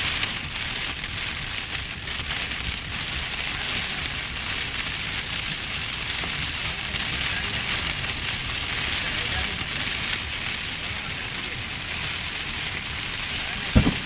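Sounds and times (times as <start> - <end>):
heavy rain pouring: 0.0 - 14.0
wind buffeting microphone: 12.9 - 14.0.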